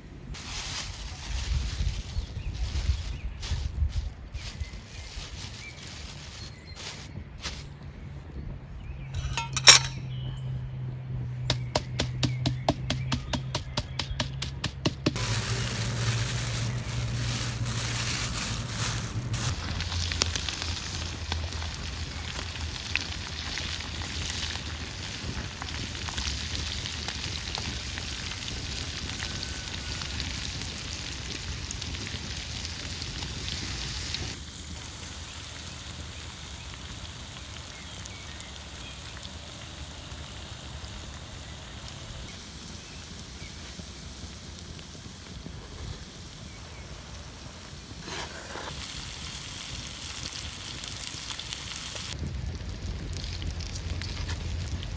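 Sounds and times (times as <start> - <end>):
wood fire crackling and sizzling: 0.3 - 7.9, 13.7 - 54.9
steady rain: 15.2 - 24.8.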